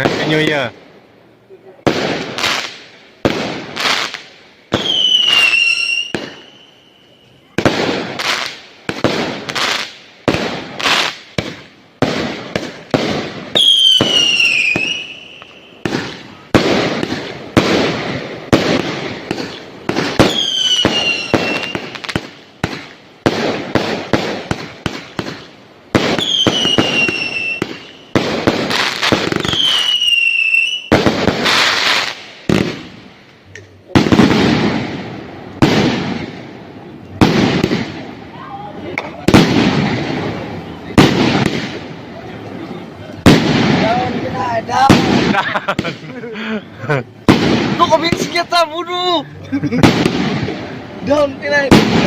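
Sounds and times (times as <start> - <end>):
fireworks banging: 0.0 - 1.0, 1.7 - 52.0
falling firework whistles: 3.8 - 9.0, 13.5 - 16.3, 19.3 - 22.3, 25.2 - 32.6.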